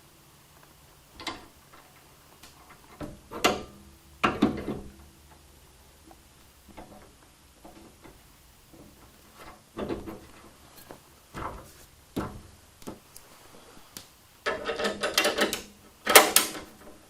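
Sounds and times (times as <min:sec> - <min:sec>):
metal parts clunking: 0:14.4 - 0:17.0.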